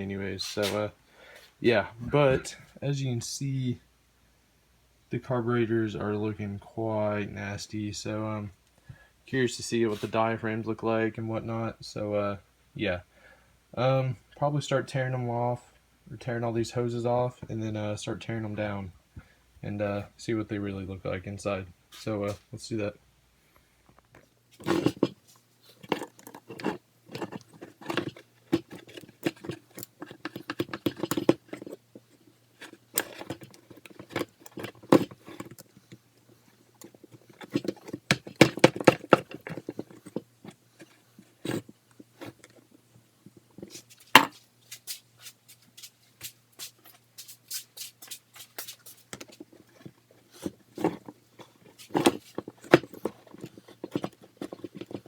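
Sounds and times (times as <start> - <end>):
small metal parts clicking and scraping: 24.1 - 44.9, 48.4 - 55.0.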